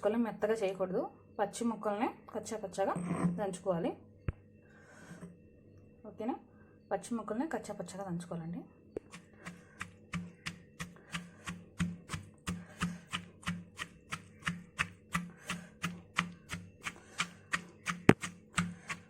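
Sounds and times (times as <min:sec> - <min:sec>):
pestle pounding in a mortar: 0:09.0 - 0:19.0.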